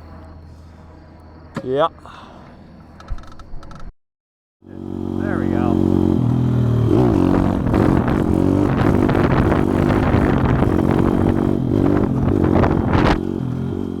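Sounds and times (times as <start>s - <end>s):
pit bike engine running: 4.6s - 14.0s.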